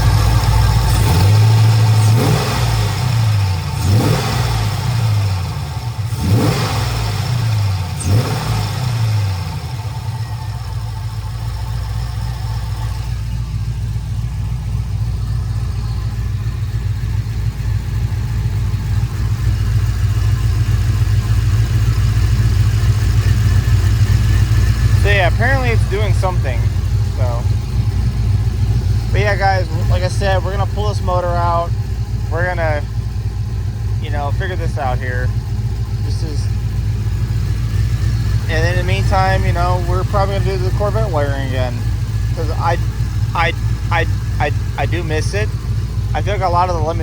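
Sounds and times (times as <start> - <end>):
car engine idling and revving: 0.0 - 47.0.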